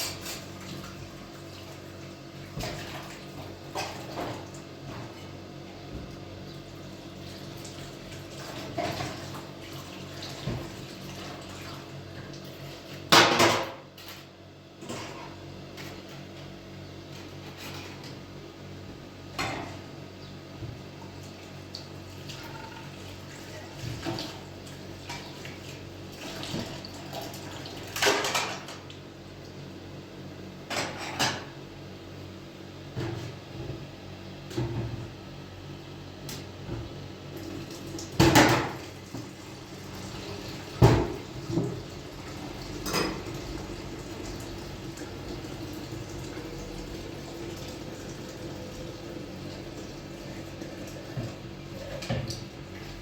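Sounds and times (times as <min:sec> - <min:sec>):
running water: 0:38.8 - 0:53.0.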